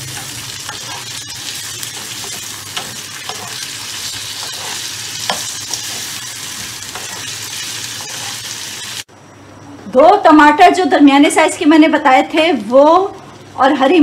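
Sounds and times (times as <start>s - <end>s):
potatoes sizzling in frying pan: 0.0s - 9.1s
metal ladle scraping a pan: 0.2s - 6.2s, 6.8s - 8.9s.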